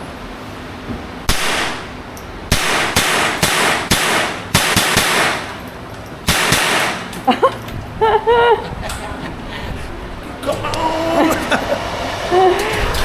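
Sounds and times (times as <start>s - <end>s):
handgun shots echoing: 1.3s - 7.3s.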